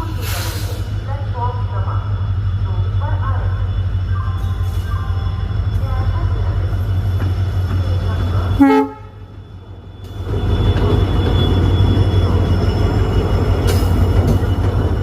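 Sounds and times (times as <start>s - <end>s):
diesel locomotive engine rumbling: 0.0s - 15.0s
locomotive horn toot: 8.6s - 9.3s.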